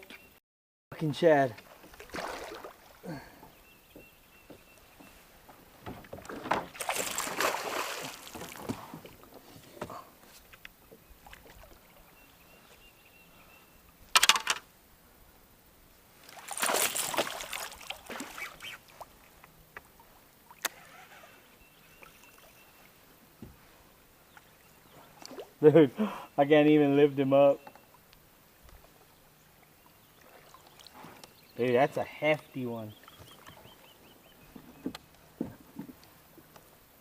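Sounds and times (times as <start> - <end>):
fish splashing in water: 1.7 - 3.2, 6.5 - 8.8, 16.2 - 19.2.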